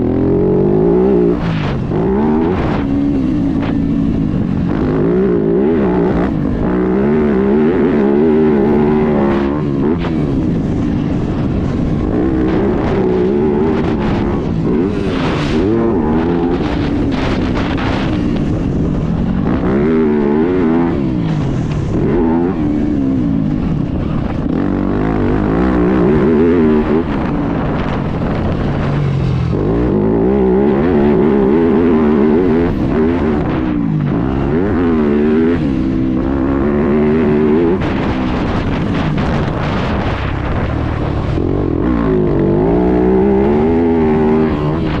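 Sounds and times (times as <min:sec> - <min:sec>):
motorbike engine revving: 0:00.0 - 0:45.0.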